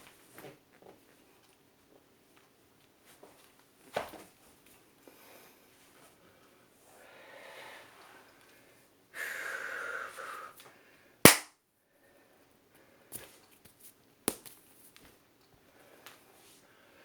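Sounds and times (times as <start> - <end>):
man breathing forcefully: 9.2 - 10.5
sharp loud smack: 11.3 - 11.5.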